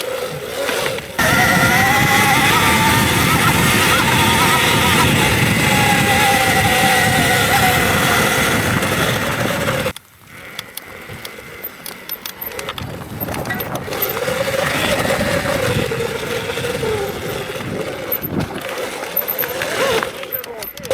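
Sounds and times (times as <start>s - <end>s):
electric motor whine: 0.0s - 20.9s
wind and ground noise: 0.0s - 20.9s.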